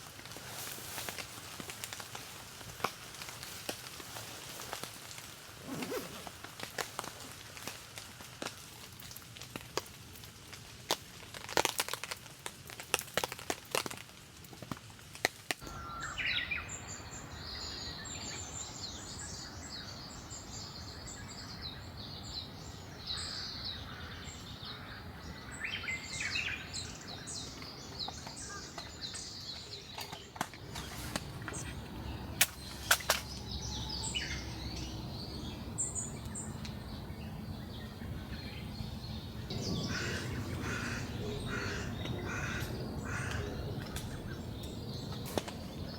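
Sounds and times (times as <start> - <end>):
small songbirds chirping: 15.6 - 45.9
sharp cracks: 32.4 - 33.5.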